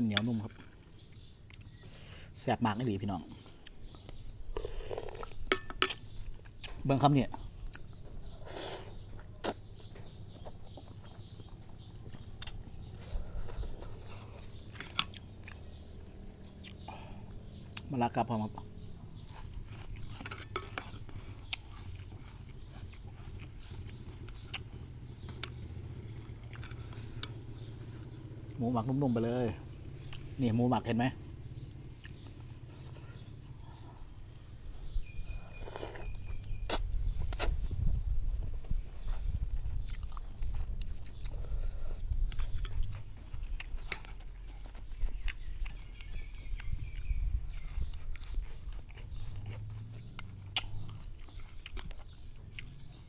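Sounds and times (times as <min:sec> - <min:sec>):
person chewing noodles: 0:03.5 - 0:06.7, 0:10.3 - 0:17.9, 0:19.1 - 0:28.1, 0:35.0 - 0:37.6, 0:39.8 - 0:53.0
wet mouth clicks: 0:35.8 - 0:37.6.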